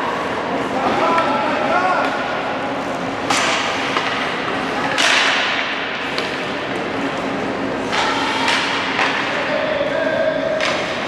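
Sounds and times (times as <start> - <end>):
gym background noise: 0.0 - 11.0
sharp echoing slaps: 3.2 - 4.2.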